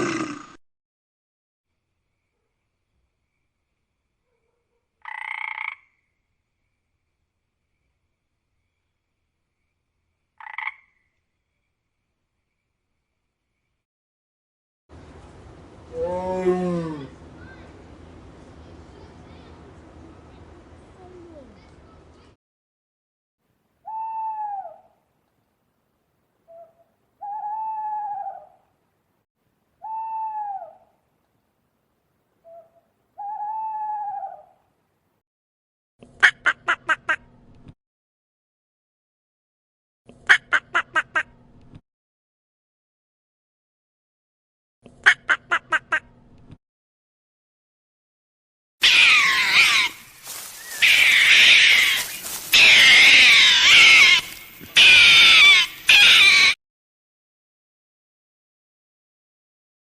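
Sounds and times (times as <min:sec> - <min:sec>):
animal crying loudly: 0:48.8 - 0:56.6
bird drawn-out arching calls: 0:48.8 - 0:56.6.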